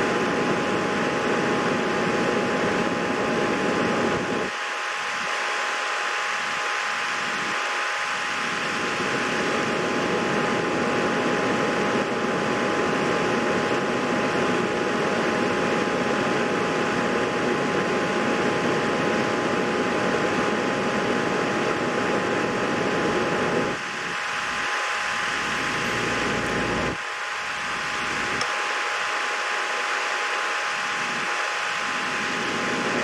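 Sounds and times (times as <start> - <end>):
fan whirring: 0.0 - 33.0
faint steady tones: 23.7 - 33.0.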